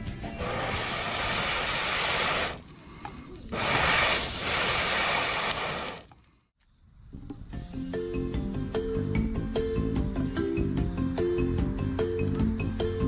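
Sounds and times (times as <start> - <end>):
steady hissing noise: 0.3 - 6.0.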